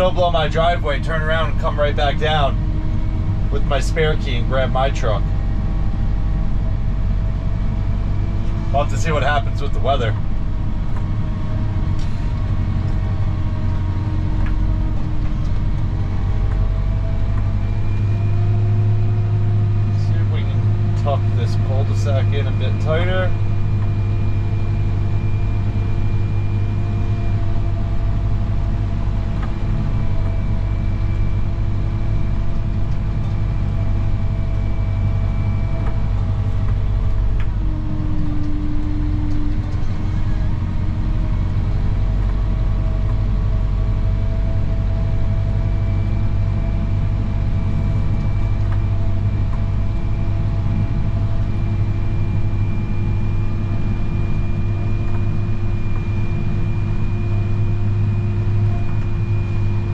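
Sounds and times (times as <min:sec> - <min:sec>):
truck engine running under load: 0:00.0 - 0:59.9.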